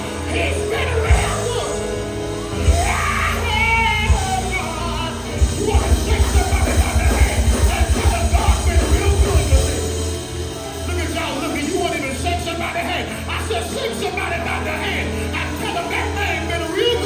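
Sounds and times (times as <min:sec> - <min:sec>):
gospel band playing: 0:00.0 - 0:17.0
voices shouting and singing: 0:00.0 - 0:17.0
fast heavy drumming: 0:02.6 - 0:10.0.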